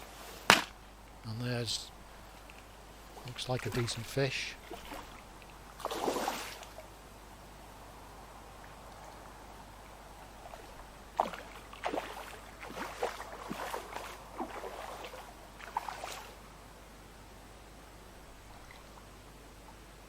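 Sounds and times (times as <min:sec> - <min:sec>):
fish splashing at water surface: 0:05.8 - 0:06.8, 0:11.2 - 0:16.4.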